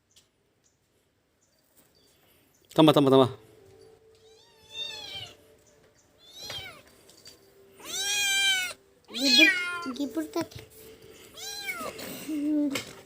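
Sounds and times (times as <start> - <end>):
cat meowing: 4.2 - 5.4, 6.2 - 6.9, 7.8 - 10.0, 11.3 - 12.0.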